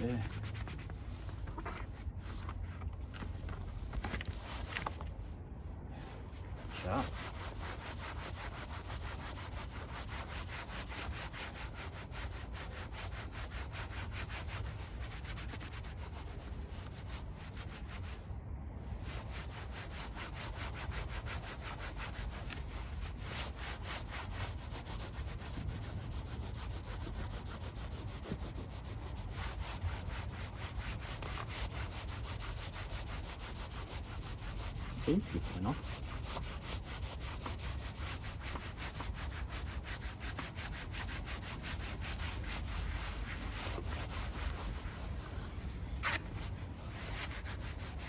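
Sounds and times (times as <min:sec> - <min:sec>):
hand scrubbing dirt: 0:00.0 - 0:05.1, 0:06.6 - 0:17.9, 0:19.1 - 0:48.0.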